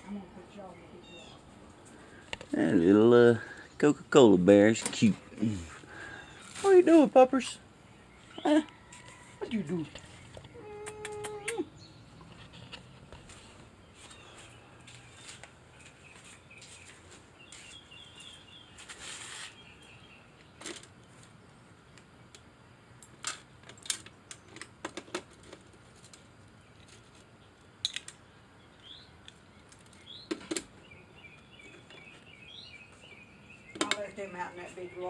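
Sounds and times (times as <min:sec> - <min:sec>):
small bird chirping: 0:00.0 - 0:01.5, 0:13.8 - 0:22.4, 0:26.6 - 0:35.0.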